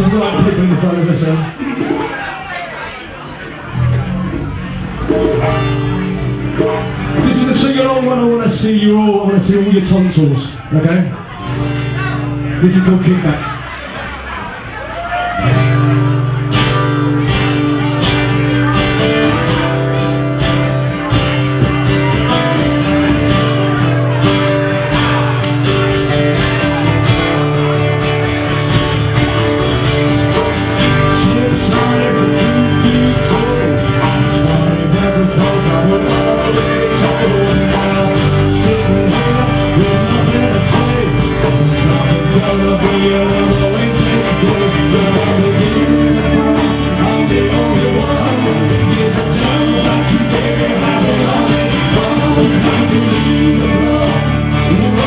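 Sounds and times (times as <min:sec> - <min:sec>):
live band playing: 0:03.2 - 0:55.0
person singing: 0:29.2 - 0:55.0.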